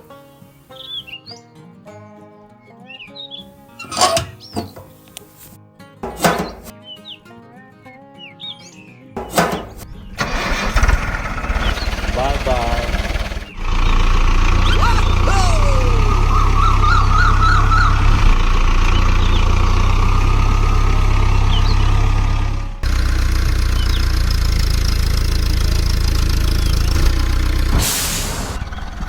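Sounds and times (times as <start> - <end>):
diesel engine droning: 9.3 - 29.0
high warbling chirps: 11.4 - 20.8
short hiss: 27.7 - 28.7.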